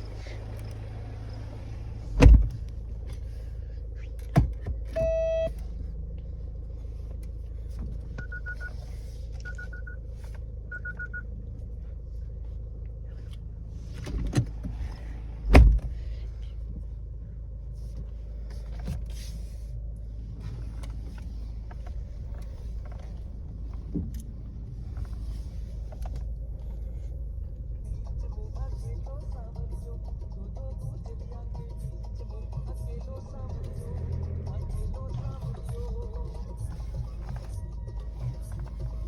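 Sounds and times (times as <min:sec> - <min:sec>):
car engine rumbling: 0:00.0 - 0:39.0
loud thump: 0:02.2 - 0:02.6, 0:15.5 - 0:15.9
car warning chime beeps: 0:04.9 - 0:05.6, 0:08.2 - 0:08.8, 0:09.4 - 0:10.0, 0:10.7 - 0:11.3.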